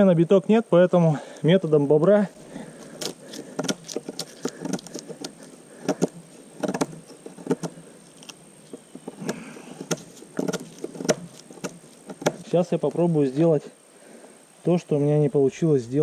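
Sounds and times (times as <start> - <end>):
knife chopping into wood: 3.0 - 7.8, 9.1 - 12.5.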